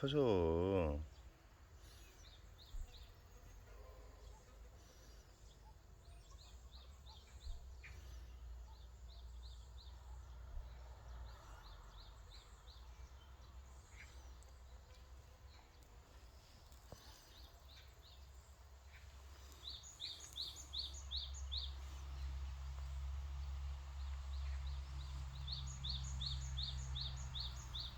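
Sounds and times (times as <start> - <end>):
small bird chirping: 11.6 - 23.5, 24.3 - 27.9.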